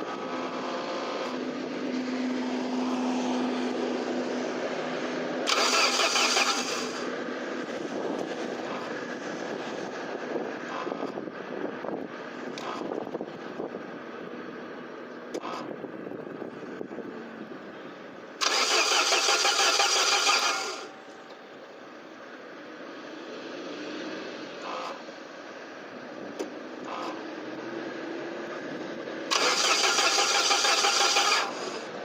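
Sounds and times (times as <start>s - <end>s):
starter motor cranking engine: 5.5s - 7.1s, 18.4s - 20.9s, 29.3s - 31.9s.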